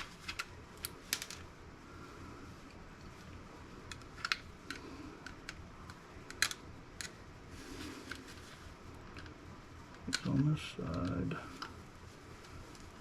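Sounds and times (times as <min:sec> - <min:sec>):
small metal parts handled: 0:00.0 - 0:01.5.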